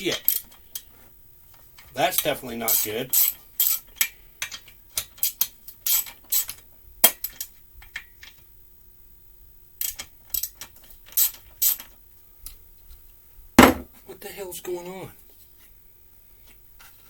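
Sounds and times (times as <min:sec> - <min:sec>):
sharp knock: 0:13.6 - 0:13.9.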